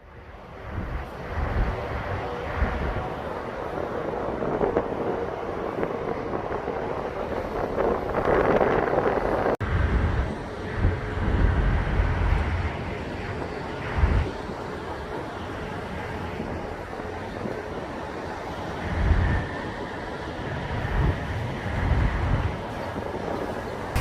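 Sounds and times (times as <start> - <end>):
low rumble: 0.0 - 14.3
vehicle and truck engines: 0.0 - 24.0.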